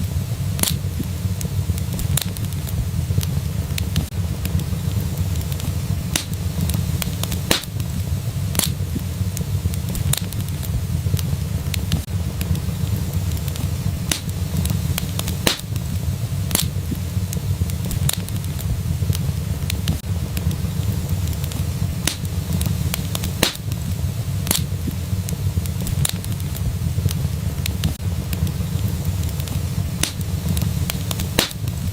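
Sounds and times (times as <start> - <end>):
wood fire crackling and popping: 0.0 - 31.9.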